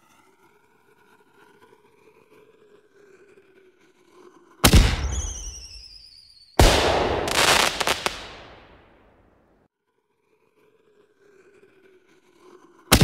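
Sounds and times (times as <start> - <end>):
loud firework bangs: 4.6 - 5.8, 6.6 - 9.1
firework warbling whistle: 5.0 - 8.8.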